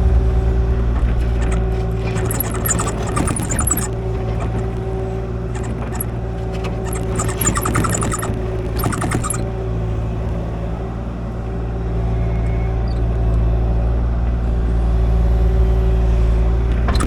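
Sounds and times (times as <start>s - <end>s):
metallic squealing: 1.1s - 9.5s.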